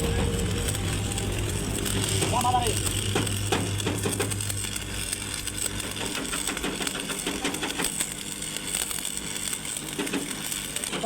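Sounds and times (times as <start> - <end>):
low steady hum: 0.0 - 6.1.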